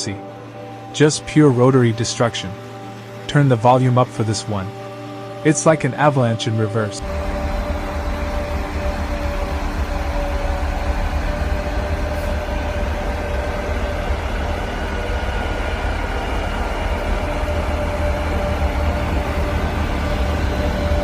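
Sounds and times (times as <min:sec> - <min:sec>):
rotary snowplow rumbling: 0:07.0 - 0:21.0.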